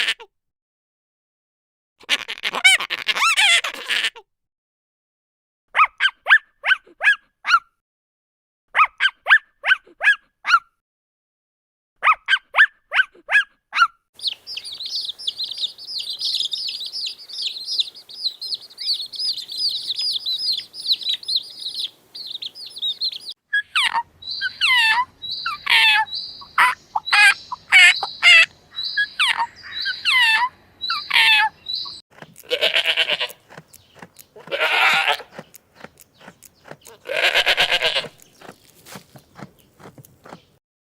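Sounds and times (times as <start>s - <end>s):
birds chirping: 14.2s - 40.6s.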